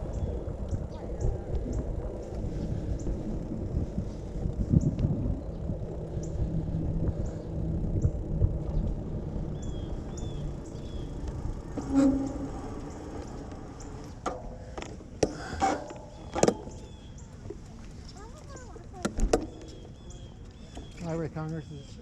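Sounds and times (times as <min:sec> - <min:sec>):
wind rumble on microphone: 0:00.0 - 0:14.7.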